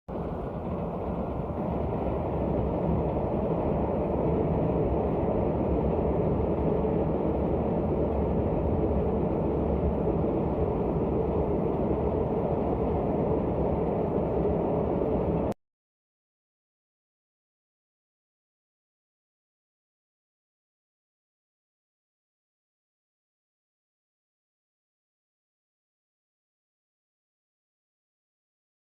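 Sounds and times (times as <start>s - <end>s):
train wheels rumbling on rail: 0.1s - 15.5s.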